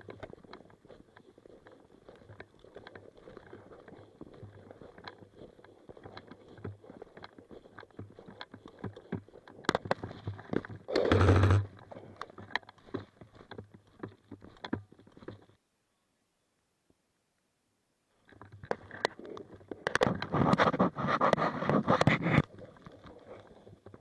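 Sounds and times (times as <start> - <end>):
footsteps through crackling brush: 0.0 - 15.6
airsoft rifle burst: 10.9 - 11.6.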